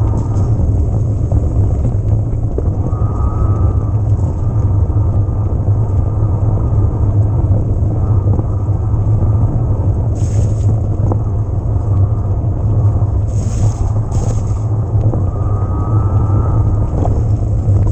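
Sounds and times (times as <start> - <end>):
bike tyres rolling on trail: 0.0 - 17.9
wind buffeting microphone: 0.0 - 17.9.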